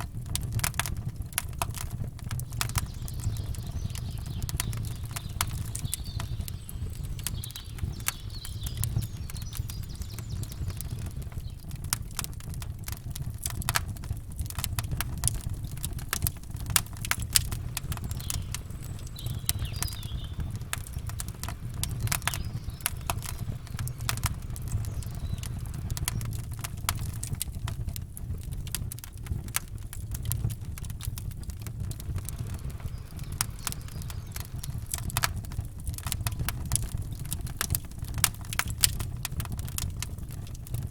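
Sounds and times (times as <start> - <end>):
campfire crackling and popping: 0.0 - 40.9
faint bird chirps: 2.6 - 11.8, 17.7 - 26.4, 32.1 - 35.6
low rumble: 16.5 - 27.6, 31.0 - 37.2.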